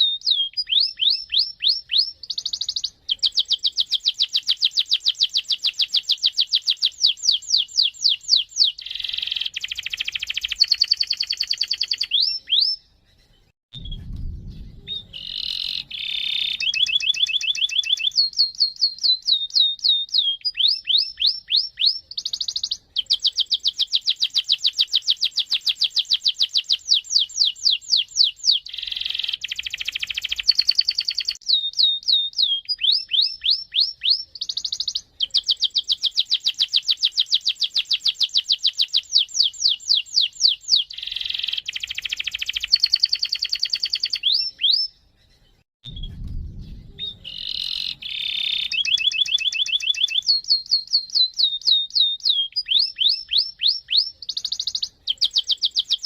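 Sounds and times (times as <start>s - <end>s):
canary singing trills: 0.0s - 45.6s, 46.6s - 56.0s
low thump: 13.7s - 15.8s, 45.8s - 48.0s.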